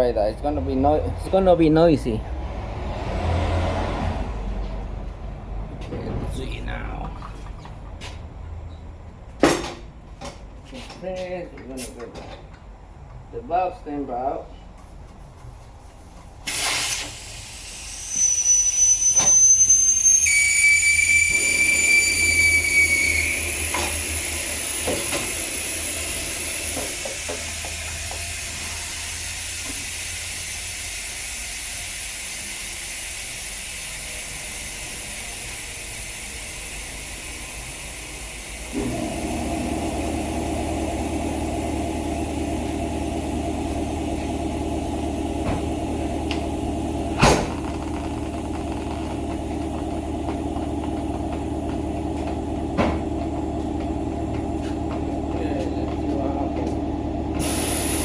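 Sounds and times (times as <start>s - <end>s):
air hissing from tire valve: 14.8s - 53.2s, 57.4s - 58.0s
high whistle: 17.6s - 25.8s
machine humming: 18.7s - 29.2s.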